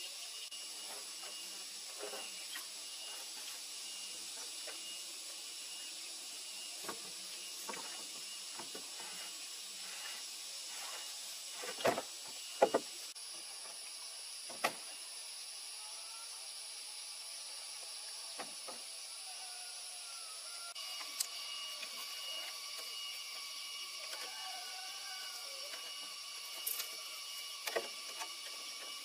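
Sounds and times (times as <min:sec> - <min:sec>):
steady high hiss: 0:00.0 - 0:29.0.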